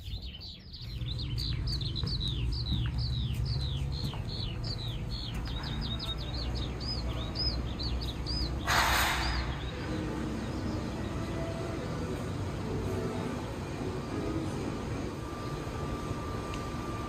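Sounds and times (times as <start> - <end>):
small bird chirping: 0.0 - 9.8
steady low hum: 0.0 - 17.0.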